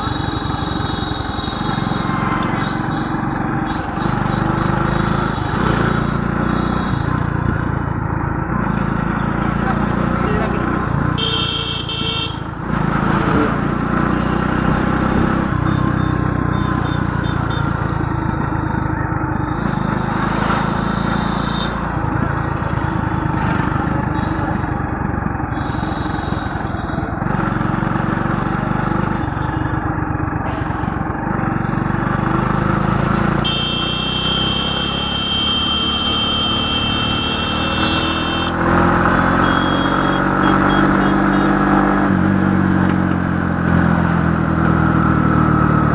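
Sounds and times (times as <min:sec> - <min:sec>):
high steady horn-like tone: 0:00.0 - 0:05.7, 0:11.2 - 0:12.4, 0:33.4 - 0:38.6, 0:39.2 - 0:41.5
road noise: 0:00.0 - 0:45.9
vehicle engine running: 0:22.0 - 0:45.9.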